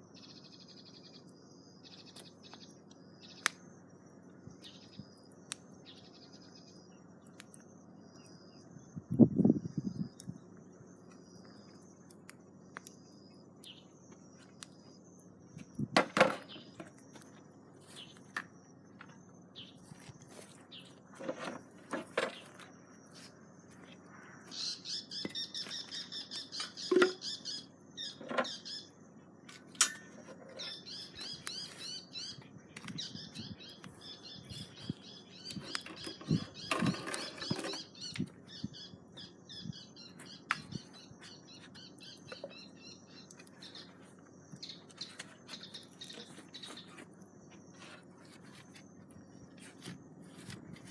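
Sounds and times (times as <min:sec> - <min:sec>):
bird chirping in trills: 0:24.1 - 0:29.1, 0:30.0 - 0:48.0.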